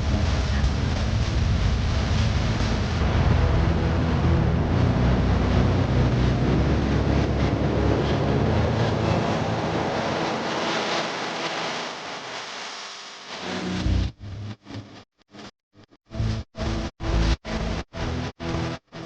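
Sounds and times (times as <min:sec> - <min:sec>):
low motor hum: 0:00.0 - 0:12.2
car wash machine rushing: 0:00.5 - 0:13.5.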